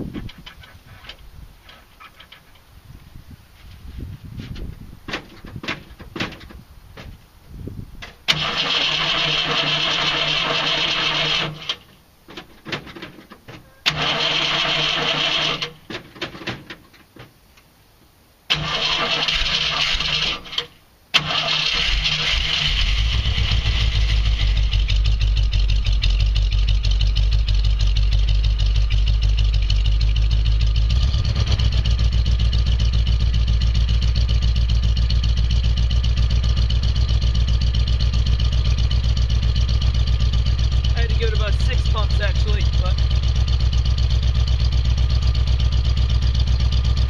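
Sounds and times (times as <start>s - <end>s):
starter motor cranking: 8.3s - 11.8s, 13.8s - 15.8s, 18.5s - 26.9s
car engine idling: 18.7s - 47.0s.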